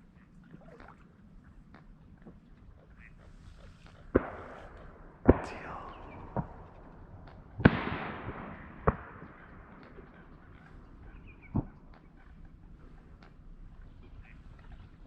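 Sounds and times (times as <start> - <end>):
shotgun shots echoing: 4.1 - 10.8.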